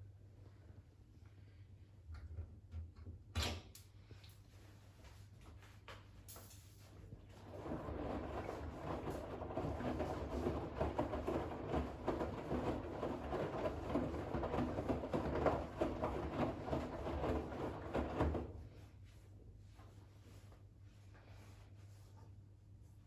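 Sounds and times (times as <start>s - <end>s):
washing machine motor hum: 7.1s - 19.0s
towels sloshing in washing machine: 7.2s - 18.9s.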